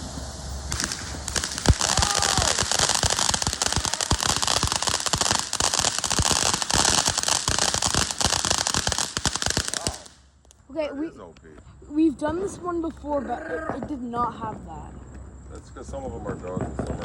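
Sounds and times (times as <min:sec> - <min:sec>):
firework bang: 0:00.0 - 0:10.2
firework whistle: 0:00.0 - 0:10.2
firework crackling: 0:00.0 - 0:10.5, 0:16.0 - 0:17.0.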